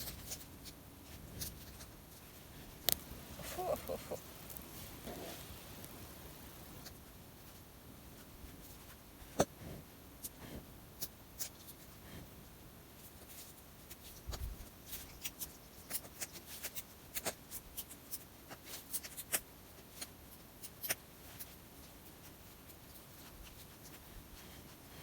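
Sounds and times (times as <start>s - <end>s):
fire crackling and popping: 2.7s - 7.0s.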